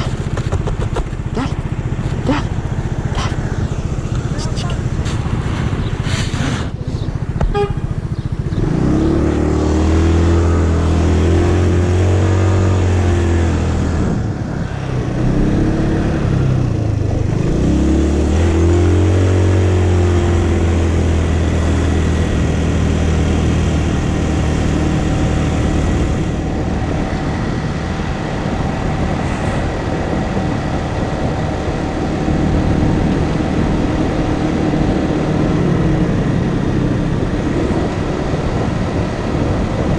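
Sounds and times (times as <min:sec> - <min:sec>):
motorcycle engine revving: 0:00.0 - 0:39.9
steady rushing noise: 0:00.0 - 0:39.9.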